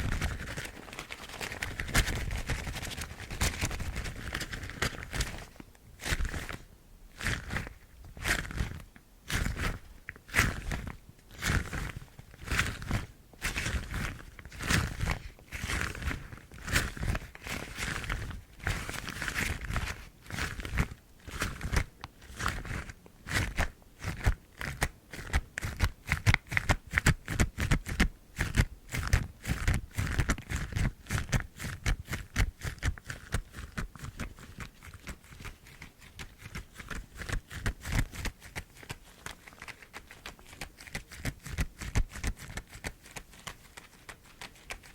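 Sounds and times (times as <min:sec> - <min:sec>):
rubber gloves squeaking and rustling: 0:32.1 - 0:44.9.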